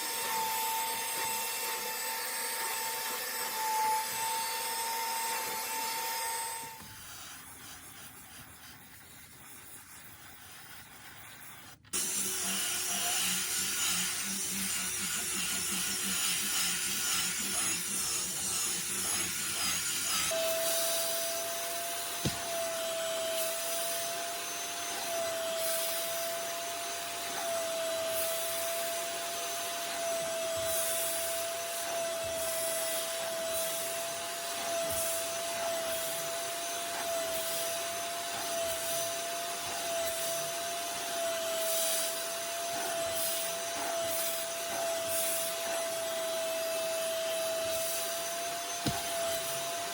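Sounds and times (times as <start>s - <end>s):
drill brush scrubbing upholstery: 0.0s - 49.9s
vacuum motor whine: 20.0s - 49.9s.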